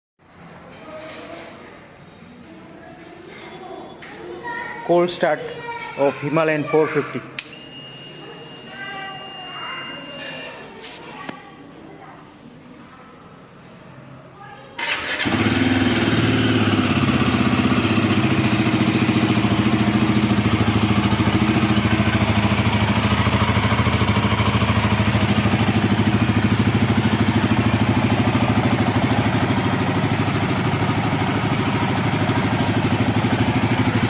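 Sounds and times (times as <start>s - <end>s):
motorcycle engine idling: 14.8s - 34.0s.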